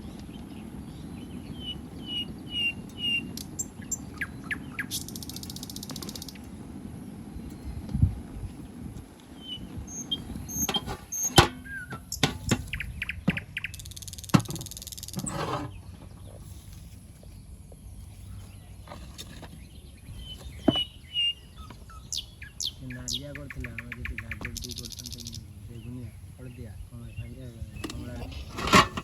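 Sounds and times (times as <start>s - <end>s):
small birds chirping: 0.0s - 29.0s
sharp knocks and clatter: 10.5s - 16.2s.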